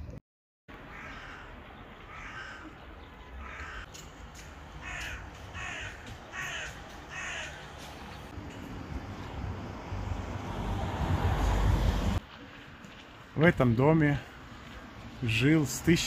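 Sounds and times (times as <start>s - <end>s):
faint street noise: 0.0s - 16.0s
crow cawing: 0.8s - 2.8s, 3.4s - 4.0s, 4.8s - 7.8s.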